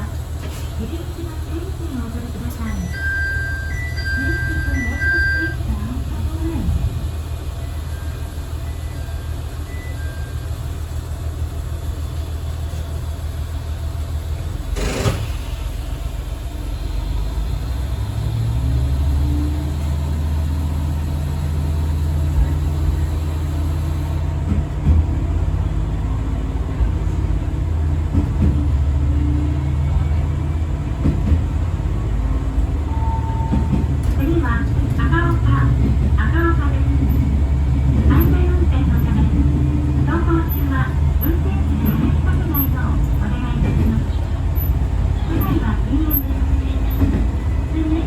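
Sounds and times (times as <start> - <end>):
diesel railcar engine rumble: 0.0 - 48.0.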